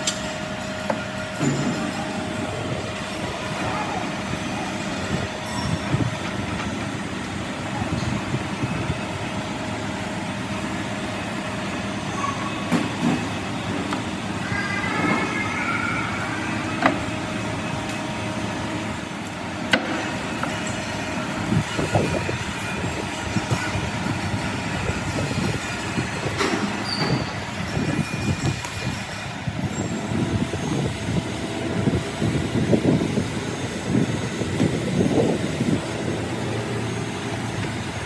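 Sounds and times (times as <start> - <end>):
heavy machinery noise: 0.0 - 38.0
short squeal: 12.1 - 12.9, 26.8 - 27.4.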